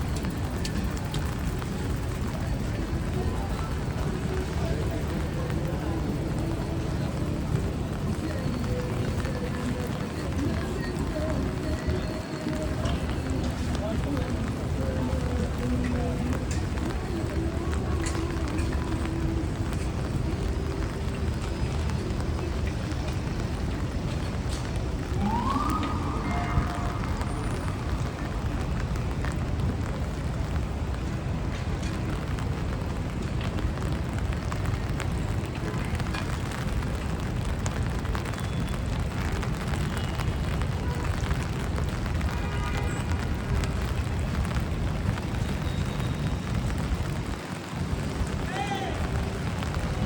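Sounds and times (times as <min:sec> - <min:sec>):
passing vehicles rumble: 0:00.0 - 0:50.0
rain and wet traffic hiss: 0:00.0 - 0:50.0.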